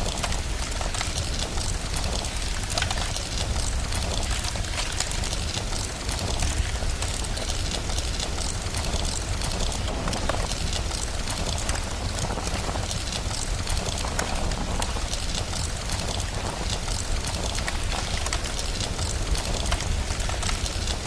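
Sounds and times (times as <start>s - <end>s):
constant low rumble: 0.0s - 21.0s
steady rain: 0.0s - 21.0s
wood fire crackling and popping: 0.0s - 21.0s.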